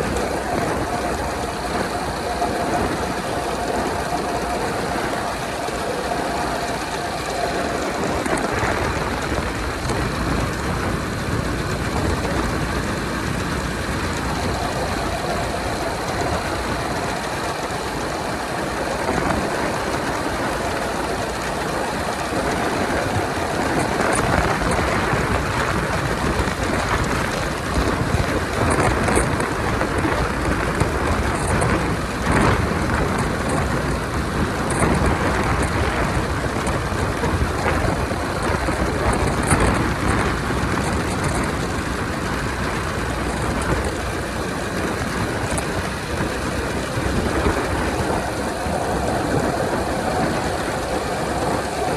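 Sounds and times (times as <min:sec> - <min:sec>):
motorcycle engine running: 0:00.0 - 0:51.9
road and wind noise: 0:00.0 - 0:51.9.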